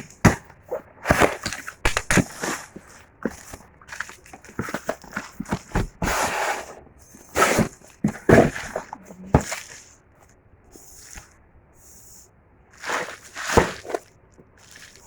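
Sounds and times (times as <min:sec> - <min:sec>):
packaging rustling and scraping: 0:00.7 - 0:10.0, 0:12.8 - 0:15.0.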